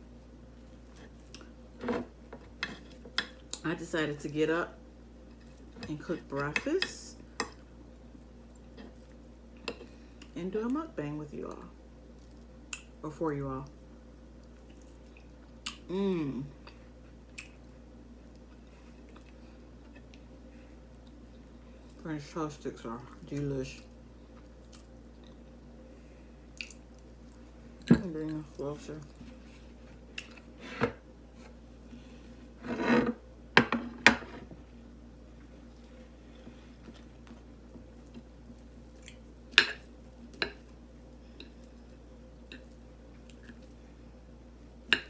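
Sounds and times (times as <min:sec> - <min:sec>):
person humming mmm: 0:15.9 - 0:16.6
faint chewing: 0:23.8 - 0:25.7, 0:26.5 - 0:27.5.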